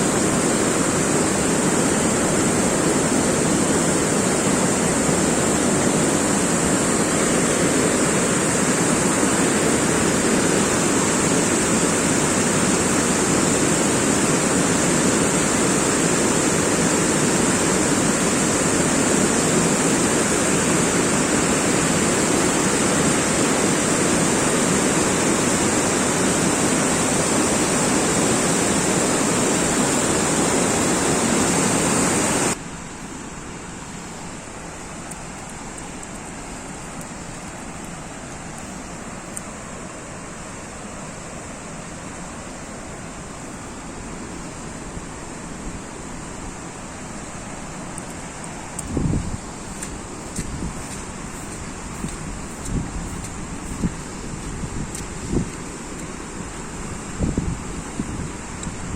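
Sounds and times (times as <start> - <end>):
water rushing: 0.0 - 58.9.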